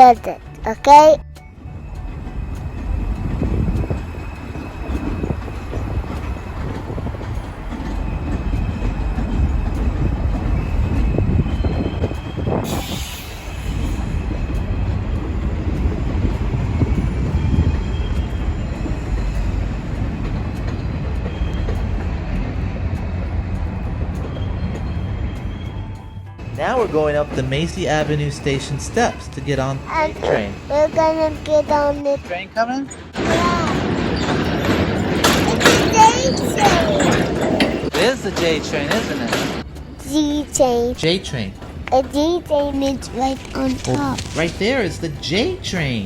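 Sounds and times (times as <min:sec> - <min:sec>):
train wheels rumbling on rails: 0:00.0 - 0:46.0
high wheel squeal: 0:01.6 - 0:22.9, 0:23.5 - 0:30.7, 0:31.9 - 0:39.6.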